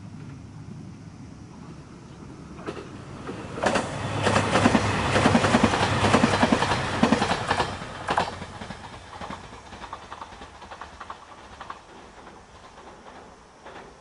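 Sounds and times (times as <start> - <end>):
wheels clacking over rail joints: 2.4 - 14.0.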